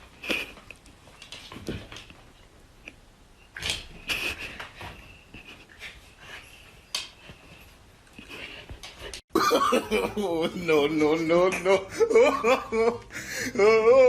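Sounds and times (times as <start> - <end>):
person speaking: 9.7 - 14.0.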